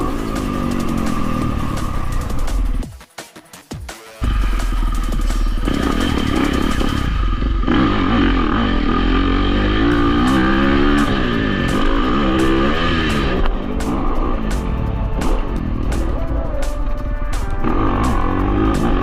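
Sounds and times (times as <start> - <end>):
dirt bike engine revving: 0.0 - 2.8, 4.2 - 19.0.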